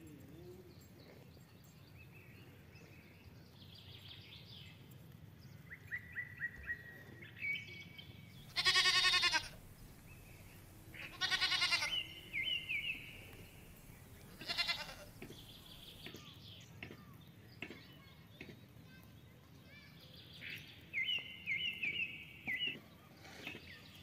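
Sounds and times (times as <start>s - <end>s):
small birds chirping: 0.0s - 24.0s
goat bleating: 8.5s - 15.8s.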